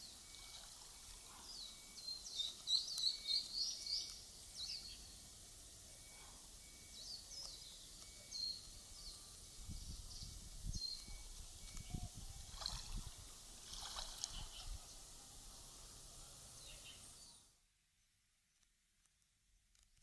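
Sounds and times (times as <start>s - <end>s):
small birds chirping: 0.0s - 12.8s, 16.5s - 17.5s.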